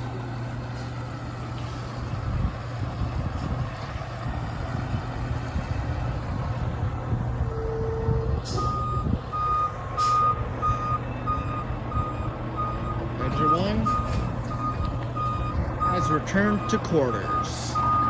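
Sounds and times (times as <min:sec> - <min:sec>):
fire engine running: 0:00.0 - 0:18.0
reversing alarm beeping: 0:07.5 - 0:18.0.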